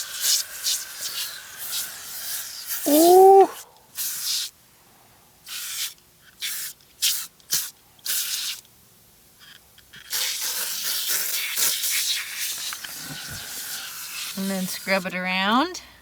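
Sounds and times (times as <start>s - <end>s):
foam cleaner spraying hiss: 0.0s - 4.5s, 10.1s - 15.2s.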